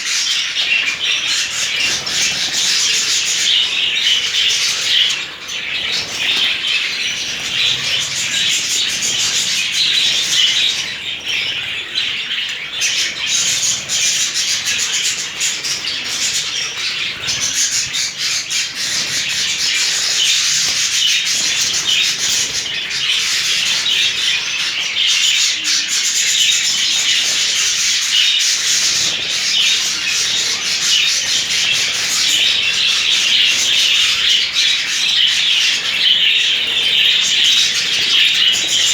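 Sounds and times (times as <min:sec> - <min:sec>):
budgerigars chattering: 0:00.0 - 0:38.9
wings fluttering: 0:00.8 - 0:11.8, 0:26.6 - 0:38.9.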